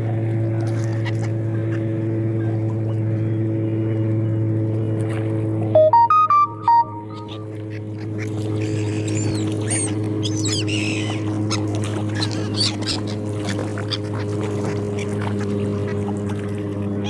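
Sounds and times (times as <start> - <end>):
seagulls calling: 5.8 - 17.0.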